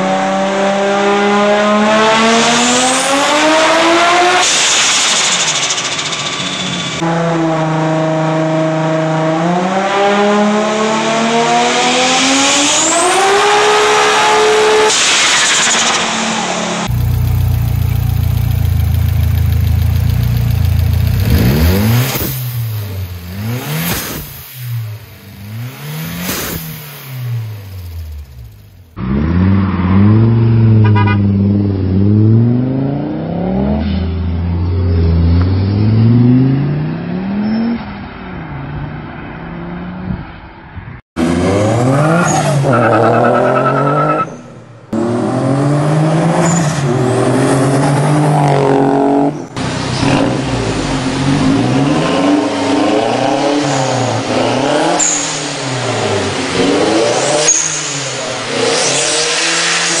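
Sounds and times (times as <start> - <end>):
car engine revving blips: 1.6 - 32.7.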